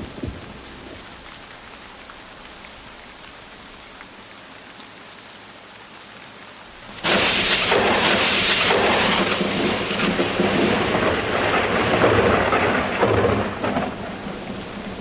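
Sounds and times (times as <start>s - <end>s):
thunder rumbling: 0.0s - 1.2s, 6.8s - 15.0s
steady rain: 0.0s - 15.0s.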